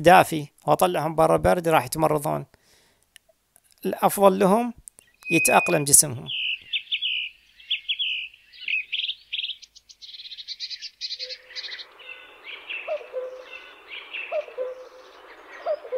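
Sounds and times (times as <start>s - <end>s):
small birds chirping: 4.8s - 15.9s
short low bird calls: 5.0s - 15.9s.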